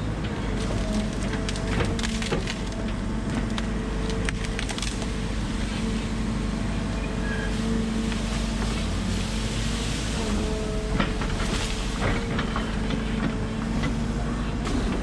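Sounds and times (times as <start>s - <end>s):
heavy machinery engine running: 0.0s - 15.0s
wood splintering cracks: 0.6s - 5.2s.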